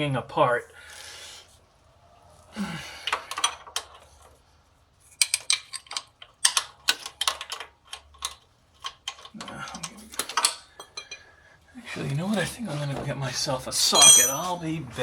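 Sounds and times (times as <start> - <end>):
metal hand tools clicking: 14.0 - 14.6.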